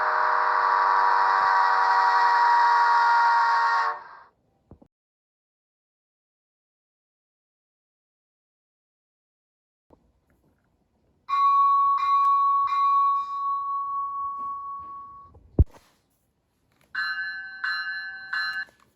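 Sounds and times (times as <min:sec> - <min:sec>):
locomotive bell ringing: 0:11.3 - 0:15.3, 0:17.0 - 0:18.8.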